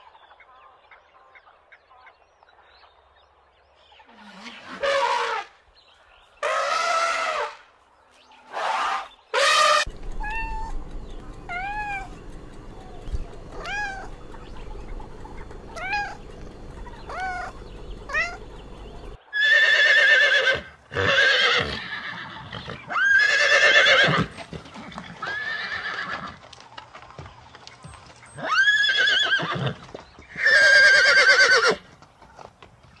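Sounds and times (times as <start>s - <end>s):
horses neighing: 9.4s - 26.4s, 28.3s - 31.9s
low hum: 9.9s - 19.2s.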